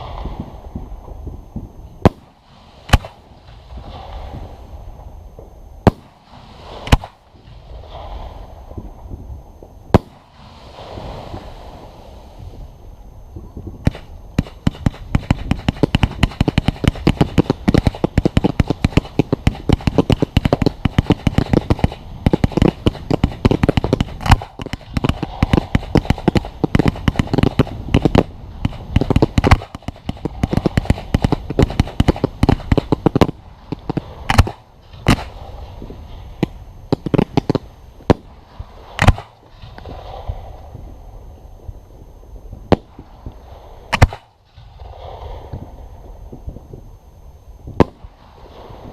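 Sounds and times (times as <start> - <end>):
fireworks bangs and crackles: 0.0 - 12.7, 13.3 - 40.9, 42.6 - 46.7, 47.7 - 48.9.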